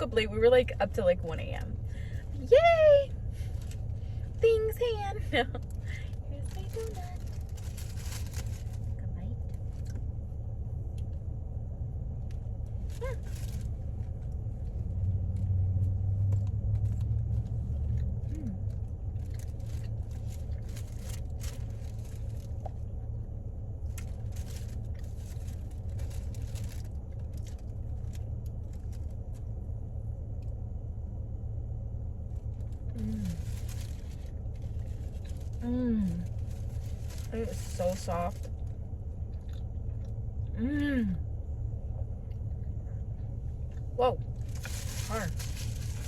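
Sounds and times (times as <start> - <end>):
car idling: 0.0 - 46.0
soft rustling and crinkling: 0.6 - 11.4, 12.1 - 30.7, 31.8 - 40.5, 41.8 - 46.0.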